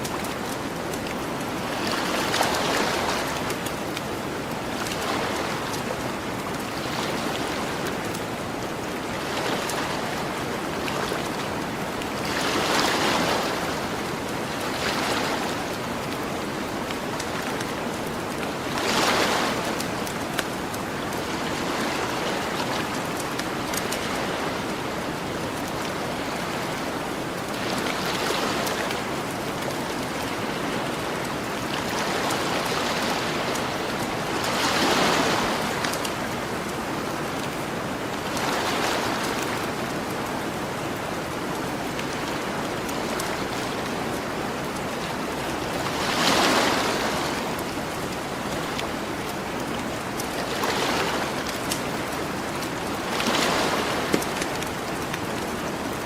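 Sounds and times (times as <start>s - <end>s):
ocean waves washing onto beach: 0.0s - 56.0s
campfire crackling: 19.7s - 21.2s.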